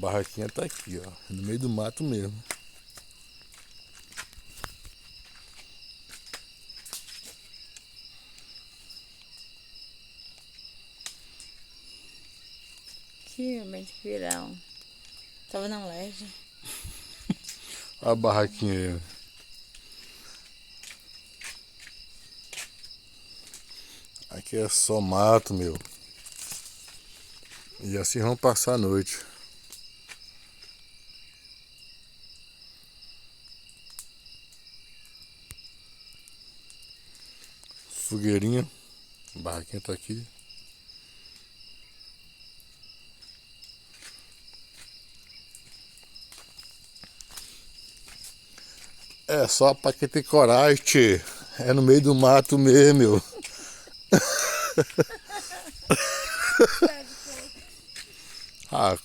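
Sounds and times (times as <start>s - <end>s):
crickets chirping: 0.0s - 59.0s
sharp snaps: 2.4s - 3.1s
faint click: 33.9s - 34.1s.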